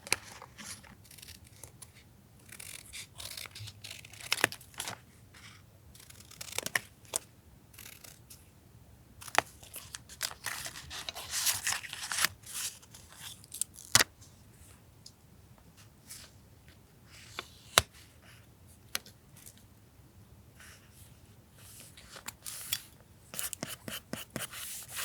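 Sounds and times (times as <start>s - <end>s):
scissors snipping paper: 1.0s - 5.0s, 6.0s - 6.9s
paper tearing and rustling: 9.8s - 12.8s.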